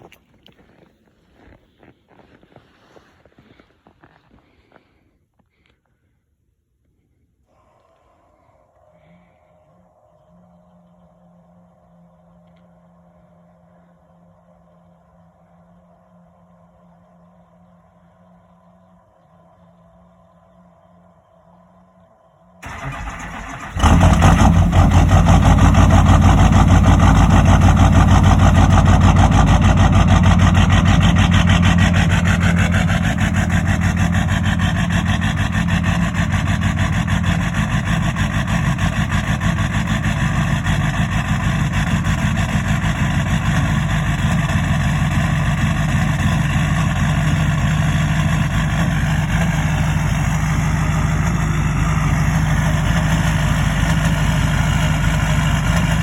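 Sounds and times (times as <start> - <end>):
diesel engine clattering idle: 22.6 - 56.0
diesel engine cold start: 22.6 - 56.0.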